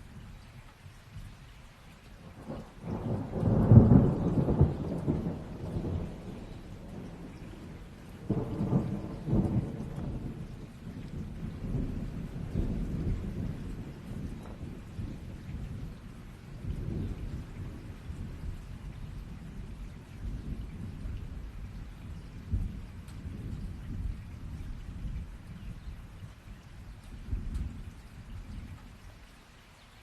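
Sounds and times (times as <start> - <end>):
rain falling: 0.0 - 30.0
rolling thunder: 2.3 - 26.2.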